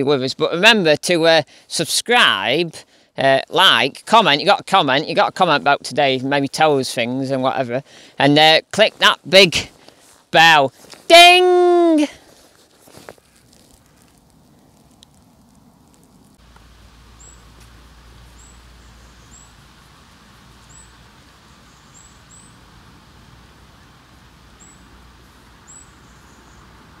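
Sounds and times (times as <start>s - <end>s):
steady background hiss: 0.0s - 27.0s
small bird chirping: 17.1s - 19.8s, 20.5s - 22.7s, 24.6s - 24.9s, 25.6s - 26.8s.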